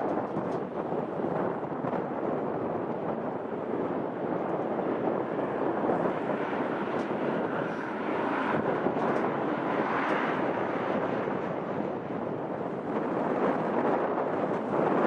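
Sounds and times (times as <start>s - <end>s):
airliner engines roaring: 0.0s - 15.0s.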